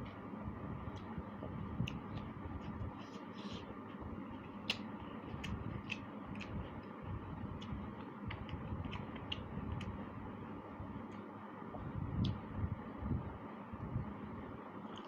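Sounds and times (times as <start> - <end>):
low background hum: 0.0 - 15.0
mouth clicks and smacks chewing: 1.8 - 3.7, 4.4 - 10.0.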